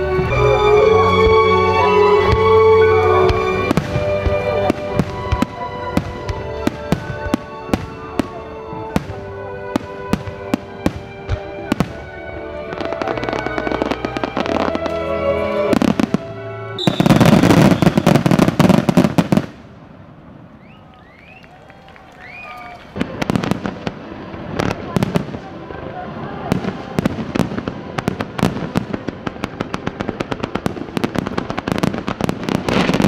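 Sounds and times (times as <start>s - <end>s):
music playing: 0.0s - 19.3s
crackling firework bursts: 0.0s - 33.0s
fireworks bursting with sharp bangs: 0.0s - 33.0s.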